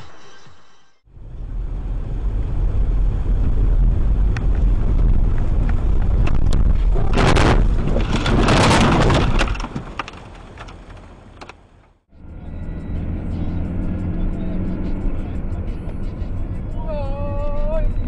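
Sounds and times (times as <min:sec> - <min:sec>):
car road and engine rumble: 0:01.0 - 0:18.0
car crash: 0:06.3 - 0:11.2.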